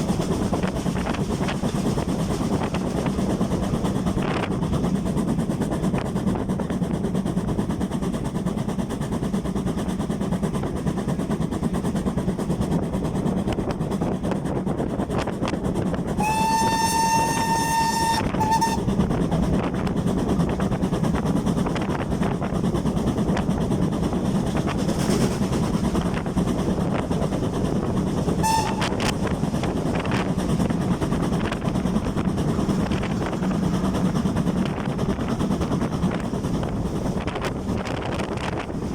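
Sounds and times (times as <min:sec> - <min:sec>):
steam train rumbling: 0:00.0 - 0:38.9
steam whistle: 0:16.2 - 0:19.0, 0:28.4 - 0:29.1.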